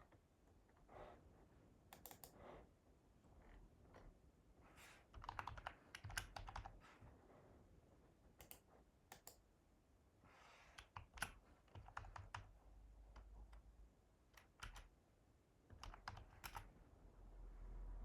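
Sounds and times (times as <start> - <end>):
keyboard typing: 1.9 - 2.4, 5.0 - 6.8, 10.8 - 13.7, 14.3 - 15.0, 15.7 - 16.8.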